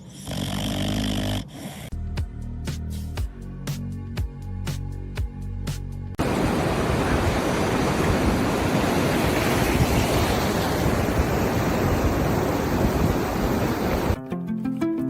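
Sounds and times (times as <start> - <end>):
loud steady rushing noise: 6.2 - 14.2.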